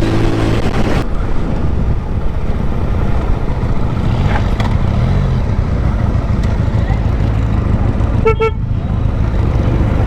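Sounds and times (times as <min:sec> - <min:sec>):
wind rumble on microphone: 0:00.0 - 0:08.0
motorcycle engine running: 0:02.6 - 0:10.0.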